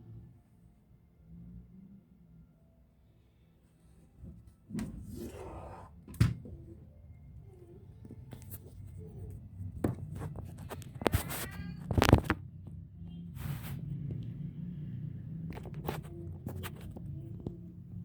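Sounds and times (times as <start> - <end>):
scraping rustle: 10.0 - 12.4.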